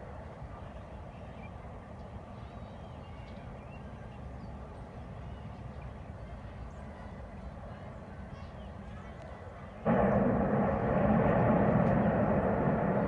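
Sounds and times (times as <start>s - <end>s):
low outdoor rumble: 9.8s - 13.0s.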